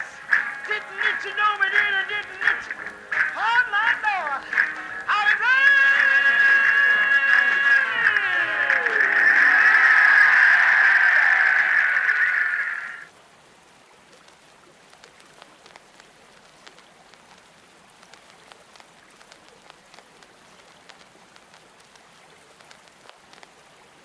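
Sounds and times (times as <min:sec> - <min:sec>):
raindrops ticking: 0:00.0 - 0:13.1, 0:14.1 - 0:24.0
soft rain hiss: 0:00.0 - 0:24.0.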